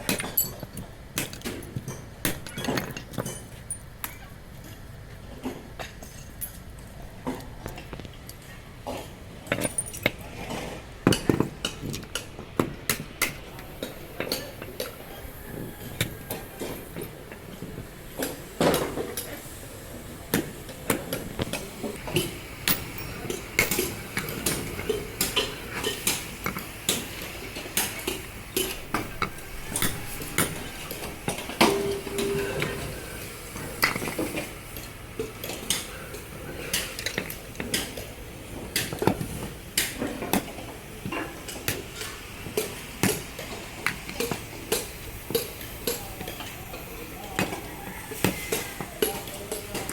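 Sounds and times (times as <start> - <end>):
metallic clinks and knocks: 9.5 - 10.2
brief ringing tone: 31.6 - 33.0.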